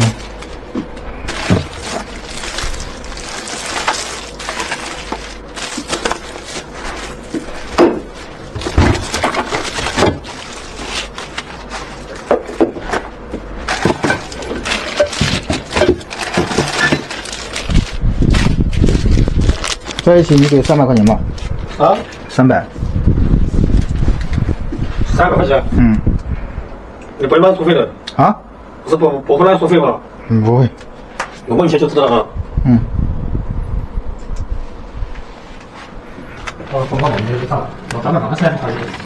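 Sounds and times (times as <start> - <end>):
packaging rustling: 0.0 - 22.2, 36.6 - 39.0.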